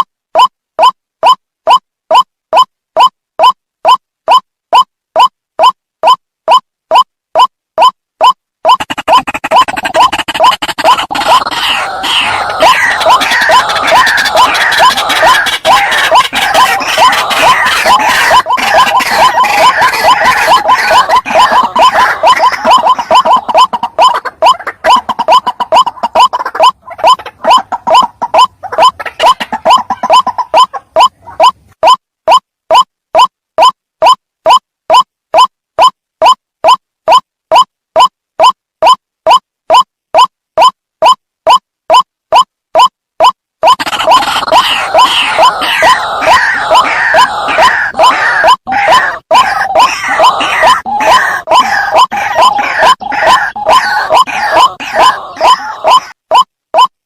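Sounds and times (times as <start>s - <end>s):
bird calling rising notes: 8.7s - 24.2s
harsh croaking bird calls: 8.7s - 34.2s, 43.6s - 56.9s.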